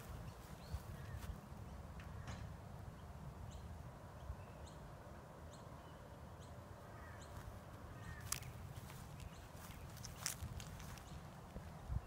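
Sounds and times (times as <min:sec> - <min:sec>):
wind rumble on microphone: 0:00.0 - 0:05.0, 0:07.6 - 0:12.0.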